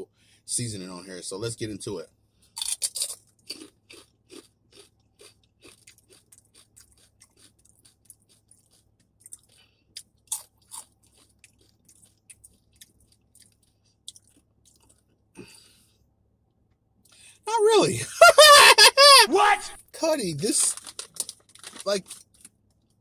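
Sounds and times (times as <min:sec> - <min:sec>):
crunchy chips being chewed: 0:02.5 - 0:15.5, 0:20.6 - 0:23.0.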